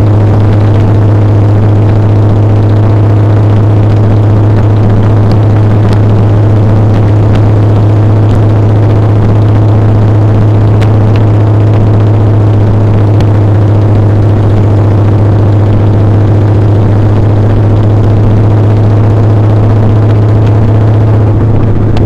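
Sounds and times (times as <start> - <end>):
motorcycle engine droning: 0.0 - 22.0
road and wind noise: 0.0 - 22.0.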